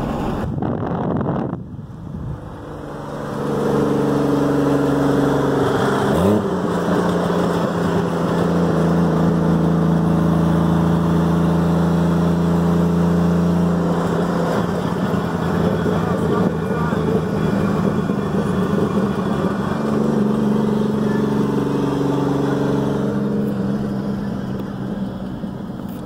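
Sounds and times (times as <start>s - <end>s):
turbocharged engine drone: 0.0s - 26.0s.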